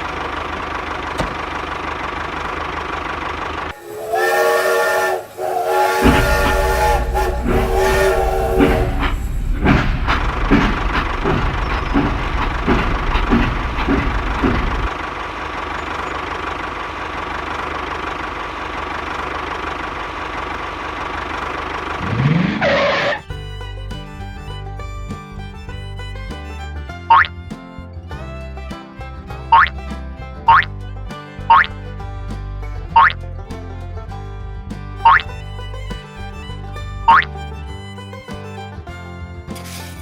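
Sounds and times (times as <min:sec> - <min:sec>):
rhythmic chugging: 0:03.6 - 0:15.1, 0:19.9 - 0:40.0
steady hissing rush: 0:03.7 - 0:10.9
steam whistle chord: 0:03.7 - 0:11.0.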